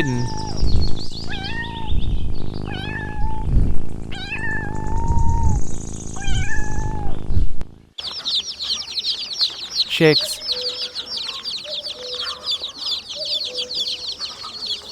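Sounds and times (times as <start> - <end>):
kitten meowing: 1.2 - 2.0, 2.7 - 3.5, 4.1 - 5.6, 6.2 - 7.2.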